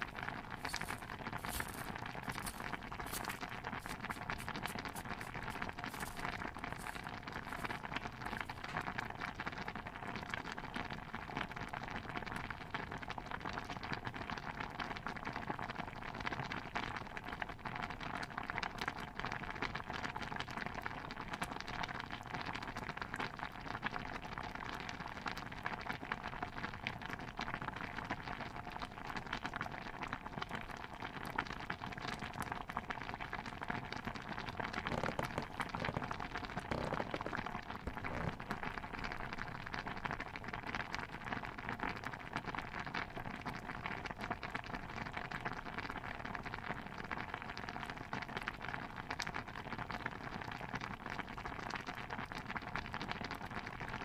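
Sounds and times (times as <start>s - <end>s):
patter of fine pops and ticks: 0.6s - 8.9s, 34.7s - 38.6s.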